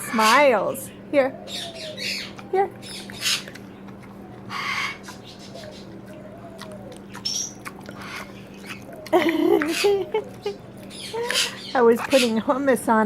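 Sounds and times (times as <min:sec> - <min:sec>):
bird squawking: 0:00.0 - 0:03.8, 0:04.4 - 0:12.6
high rising bird chirp: 0:00.0 - 0:03.8, 0:04.4 - 0:09.1, 0:09.7 - 0:12.4
steady low hum: 0:00.0 - 0:13.0.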